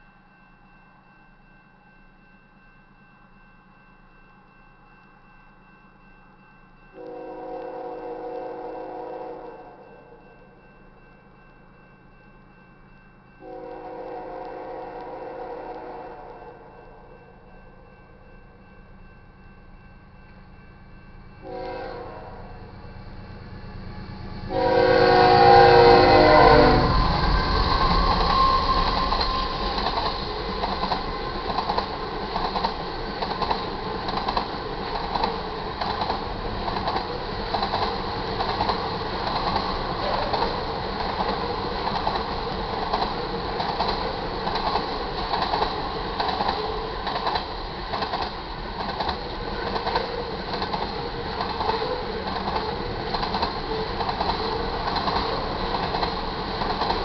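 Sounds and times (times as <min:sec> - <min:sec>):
train horn chord: 0:07.0 - 0:09.8, 0:13.4 - 0:16.7, 0:21.4 - 0:22.8, 0:24.4 - 0:29.6
train cars rumbling past: 0:20.2 - 0:57.0
wheels clacking over rail joints: 0:27.5 - 0:57.0.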